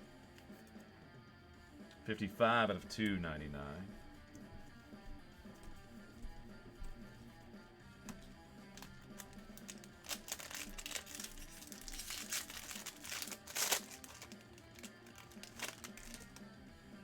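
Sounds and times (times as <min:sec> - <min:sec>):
background music: 0:00.0 - 0:17.0
foil wrapper crinkling and tearing: 0:08.6 - 0:16.5.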